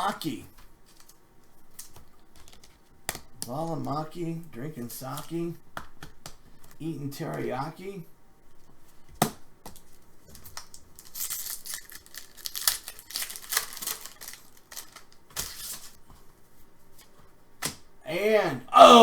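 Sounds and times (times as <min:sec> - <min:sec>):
cards and packaging rustling: 0:00.5 - 0:03.3, 0:09.7 - 0:16.0.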